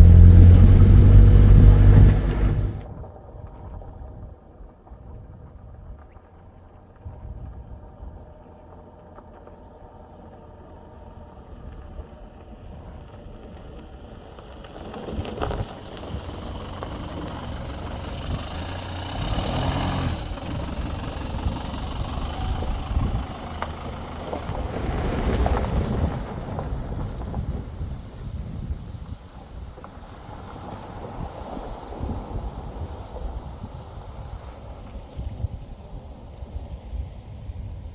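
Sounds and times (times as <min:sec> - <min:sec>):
knocks and rattles from bumps: 0:00.0 - 0:02.8
vehicle engine hum: 0:00.0 - 0:02.8, 0:08.1 - 0:27.2
tyre noise on dirt road: 0:00.0 - 0:02.9, 0:08.1 - 0:37.1.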